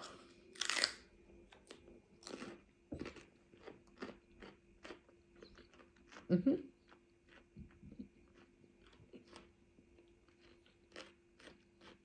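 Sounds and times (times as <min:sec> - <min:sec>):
biting into crunchy celery: 0:00.0 - 0:01.0, 0:02.2 - 0:06.3, 0:10.3 - 0:12.0
crunchy chewing: 0:00.0 - 0:12.0.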